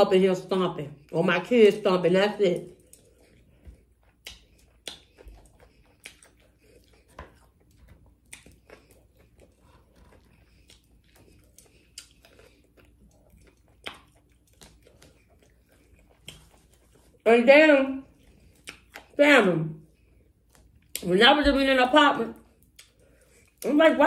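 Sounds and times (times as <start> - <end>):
soft chewing: 0.4 - 24.0
crunching of fried breading: 3.8 - 17.2.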